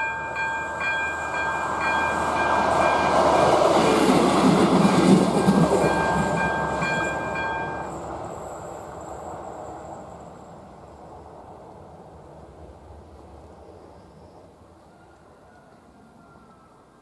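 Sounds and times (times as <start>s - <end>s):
level crossing warning bell: 0.0s - 4.4s, 5.3s - 8.2s
diesel railcar passing: 0.0s - 16.4s.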